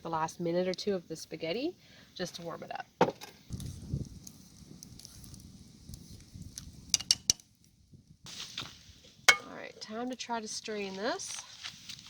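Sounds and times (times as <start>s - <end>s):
campfire crackling: 3.4s - 12.0s
sharp fire pops: 3.5s - 7.5s.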